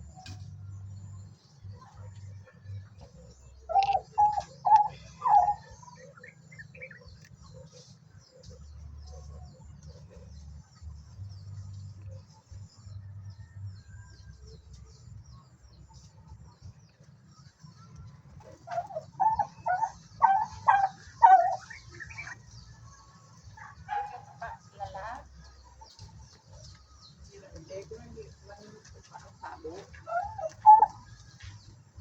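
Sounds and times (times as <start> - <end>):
low steady rumble: 0.0 - 29.2
poultry calling: 1.8 - 11.2, 18.4 - 31.6.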